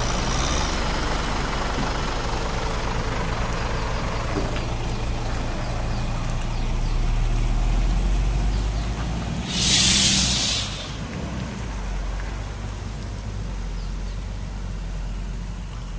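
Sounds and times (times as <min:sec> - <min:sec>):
diesel truck engine idling: 0:00.0 - 0:15.9
air brake hiss: 0:09.4 - 0:11.1.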